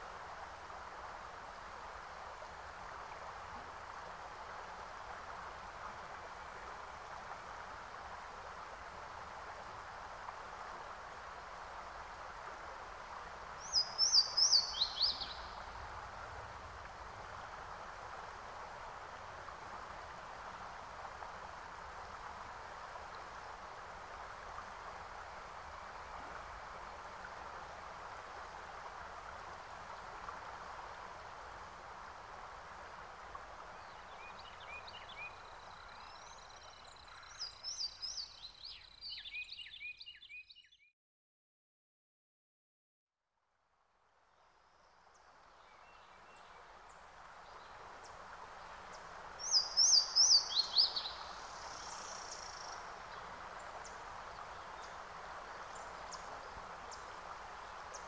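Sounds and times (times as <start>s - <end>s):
steady background hiss: 0.0s - 40.0s, 43.8s - 58.0s
bird chirping: 13.7s - 15.5s.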